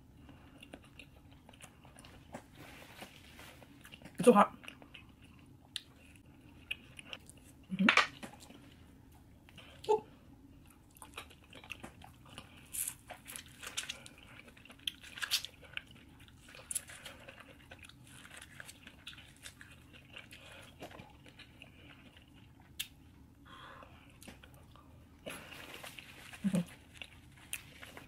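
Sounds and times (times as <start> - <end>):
chewing and biting food: 0.2 - 2.6, 10.6 - 23.0, 24.0 - 28.0.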